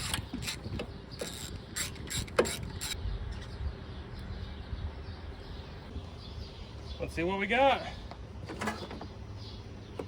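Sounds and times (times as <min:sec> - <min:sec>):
wrench metallic clicks and creaks: 0:00.0 - 0:03.5.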